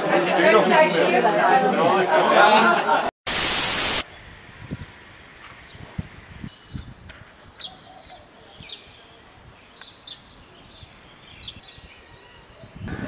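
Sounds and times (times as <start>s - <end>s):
faint street background noise: 4.0s - 13.0s.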